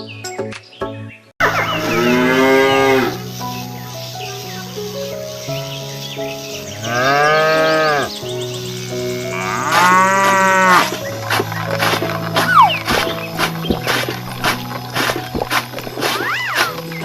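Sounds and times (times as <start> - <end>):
background music: 0.0 - 17.0
cow mooing: 1.8 - 3.2, 6.8 - 8.1, 9.2 - 11.0.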